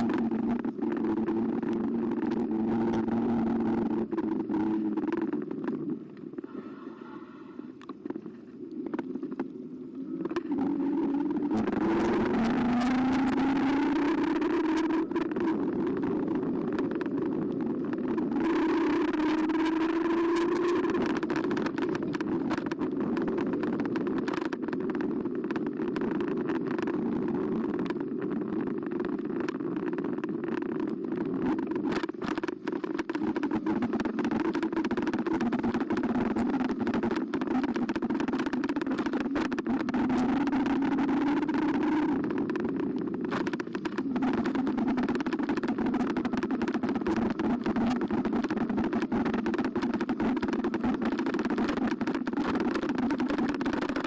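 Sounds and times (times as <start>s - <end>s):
electric bike motor hum: 0.0s - 54.0s
sharp rattles and clicks: 0.0s - 54.0s
tyres rumbling on path: 0.0s - 54.0s.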